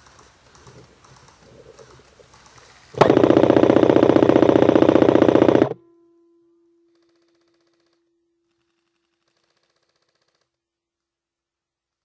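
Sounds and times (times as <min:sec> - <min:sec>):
airsoft gun full-auto burst: 0:03.0 - 0:05.8.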